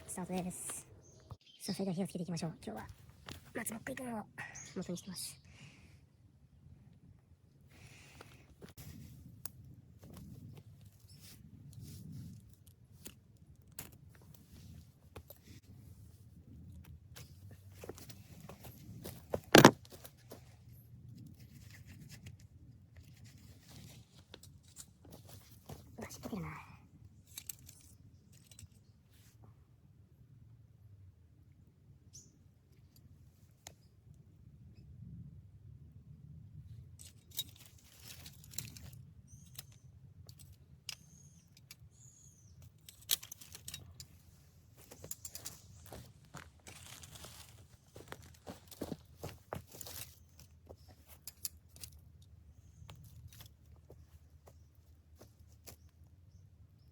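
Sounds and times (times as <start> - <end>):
material rustling and clicking: 17.2 - 20.4.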